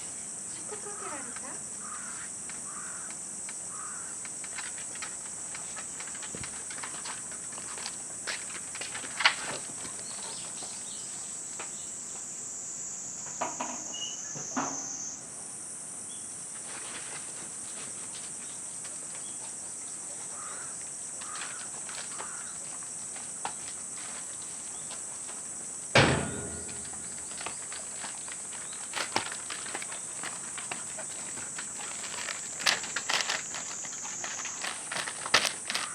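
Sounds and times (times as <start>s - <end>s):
heavy thump: 26.0s - 27.2s.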